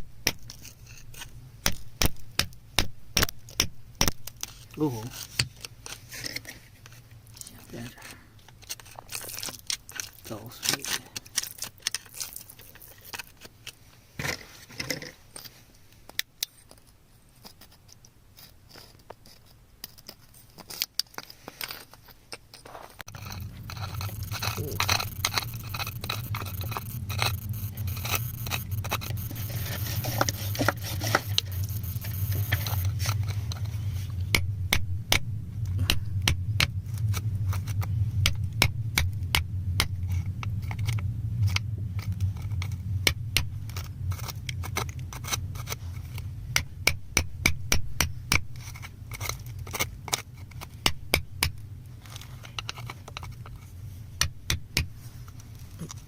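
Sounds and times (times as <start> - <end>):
hand tools scraping rock: 0.2 - 15.6, 16.4 - 35.2
low hum: 22.8 - 54.2.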